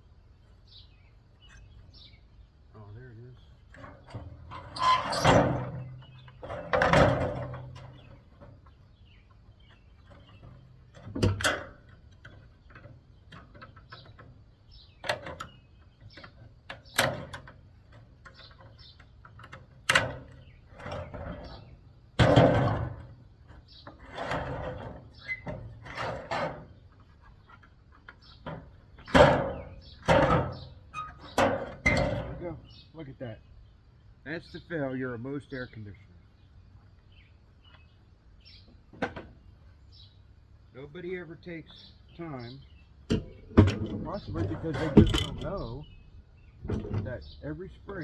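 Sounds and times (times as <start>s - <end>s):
parts scraping and rattling: 3.5s - 32.7s, 42.3s - 48.0s
sharp metal knocks: 43.1s - 47.5s.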